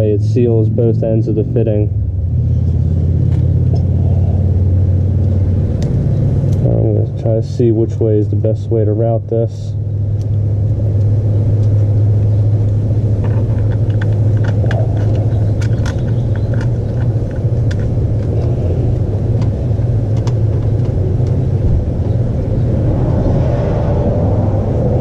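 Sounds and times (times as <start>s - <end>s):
loud low rumble: 0.0s - 9.0s, 9.7s - 25.0s
small clicks and taps: 12.6s - 18.5s, 19.4s - 21.4s.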